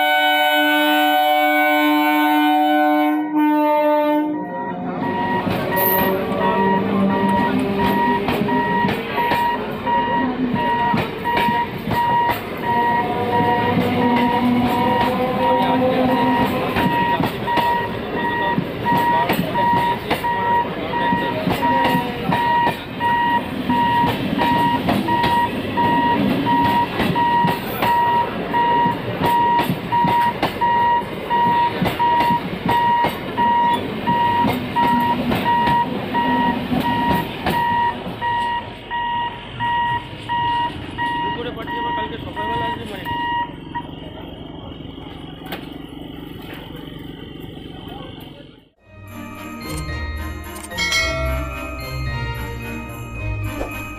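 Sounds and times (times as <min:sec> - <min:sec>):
train motor whine: 0:00.0 - 0:48.7
electric train rumbling past: 0:00.0 - 0:53.9
level crossing warning beeps: 0:04.3 - 0:44.2.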